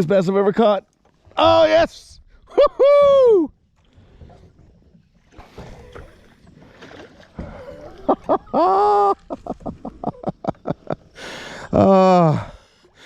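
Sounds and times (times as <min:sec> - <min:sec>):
water splashing around kayak: 0:00.9 - 0:13.0
man whooping: 0:02.5 - 0:03.5
man laughing: 0:07.9 - 0:11.1.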